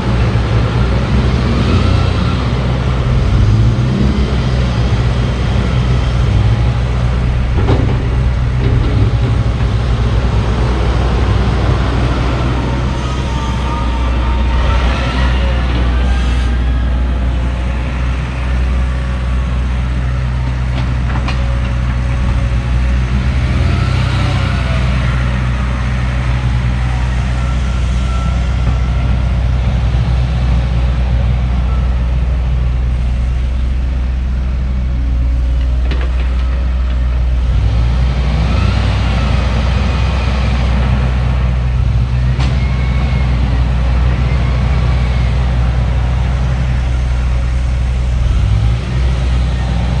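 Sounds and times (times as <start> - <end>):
diesel digger engine running: 0.0 - 50.0
sharp knocks: 7.4 - 10.4.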